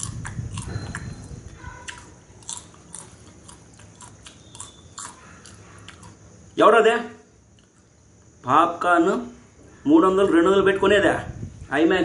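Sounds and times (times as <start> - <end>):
person chewing popcorn: 0.0 - 6.5.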